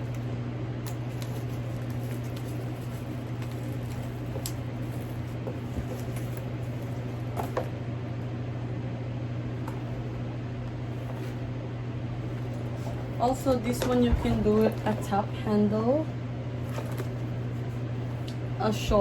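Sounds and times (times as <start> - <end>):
low room hum: 0.0 - 19.0
handbag handling: 0.8 - 7.7, 16.6 - 17.4.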